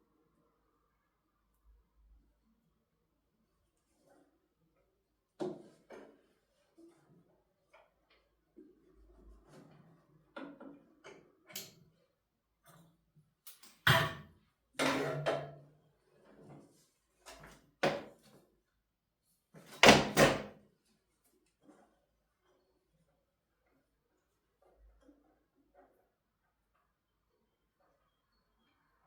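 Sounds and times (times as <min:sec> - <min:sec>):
knocks and clunks of objects: 0:13.7 - 0:15.7, 0:17.4 - 0:18.3.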